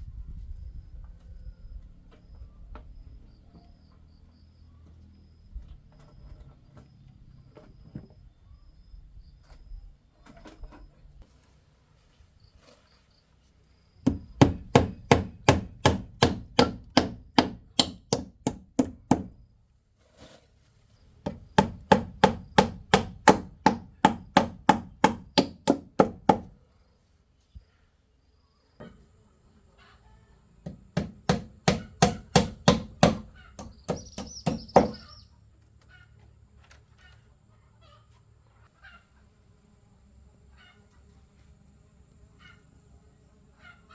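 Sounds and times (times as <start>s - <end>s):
knife chopping on a board: 14.1s - 19.4s, 21.3s - 26.5s, 30.7s - 35.0s.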